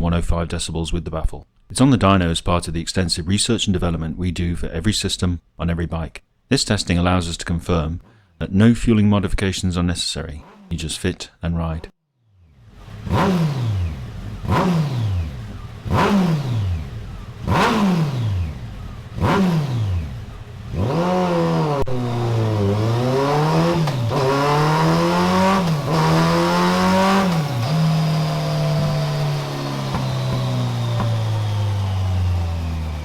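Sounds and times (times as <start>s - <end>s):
motorcycle engine revving: 10.3s - 11.1s, 12.2s - 33.0s.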